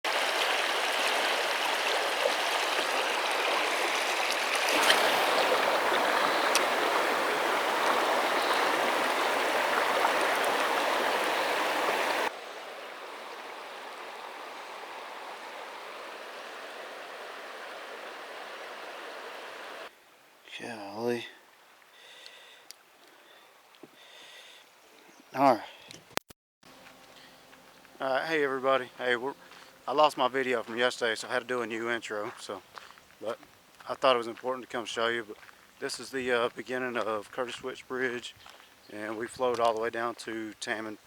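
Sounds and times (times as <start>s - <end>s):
river water rushing: 0.1s - 19.9s.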